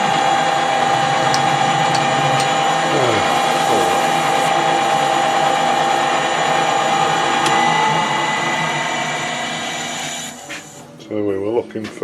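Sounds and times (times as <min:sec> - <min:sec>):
metal lathe gear whine: 0:00.0 - 0:10.4.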